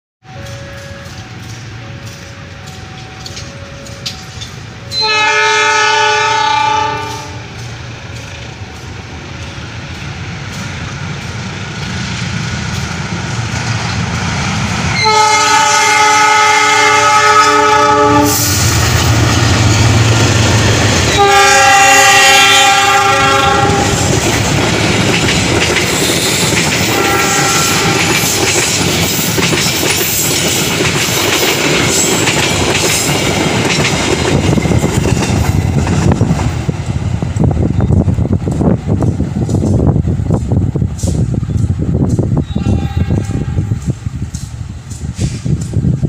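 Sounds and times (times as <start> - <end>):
train horn blasts: 0.2 - 7.6, 14.9 - 19.0, 21.0 - 24.2, 26.2 - 28.4, 42.4 - 44.0
train rumble: 0.2 - 46.0.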